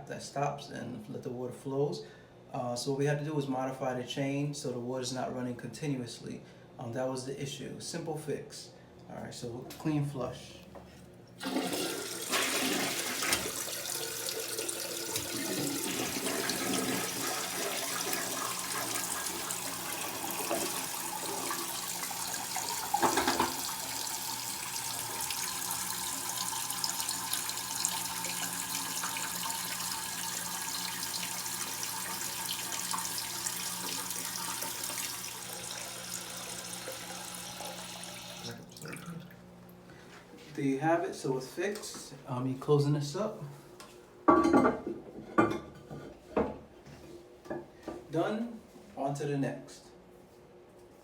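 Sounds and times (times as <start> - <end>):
toilet tank refilling hiss: 11.4 - 38.6.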